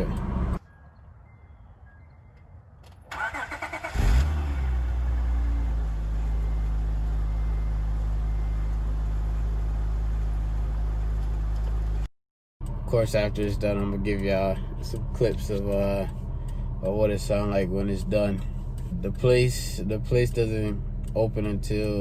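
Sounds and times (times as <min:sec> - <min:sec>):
car engine revving and idling: 0:00.0 - 0:00.6, 0:03.2 - 0:22.0
car starter cranking: 0:02.9 - 0:05.2.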